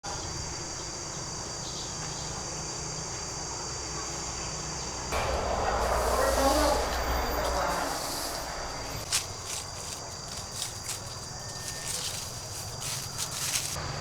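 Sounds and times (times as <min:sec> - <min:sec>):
insects chirring: 0:00.1 - 0:14.0
rustling with low rumble: 0:05.2 - 0:13.8.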